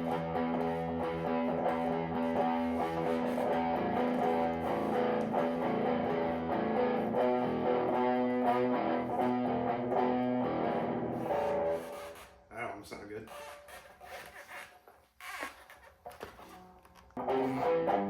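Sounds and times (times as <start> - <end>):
distorted electric guitar riff: 0.0 - 12.0, 17.2 - 18.0.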